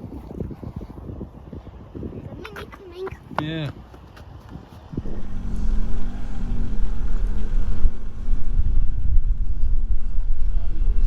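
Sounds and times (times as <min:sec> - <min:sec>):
wind buffeting microphone: 0:00.0 - 0:11.0
car engine pulling away: 0:04.9 - 0:11.0.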